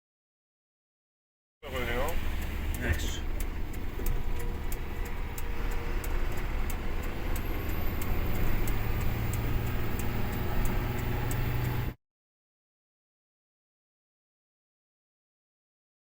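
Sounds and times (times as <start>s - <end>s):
low engine rumble: 1.6s - 12.0s
faint high ticking: 1.8s - 12.0s.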